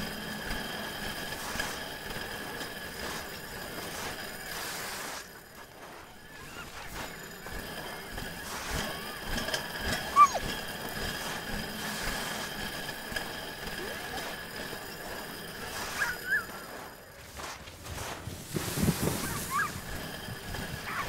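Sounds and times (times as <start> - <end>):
sled hissing and rattling on snow: 0.0 - 21.0
short high squeaks: 10.0 - 10.5.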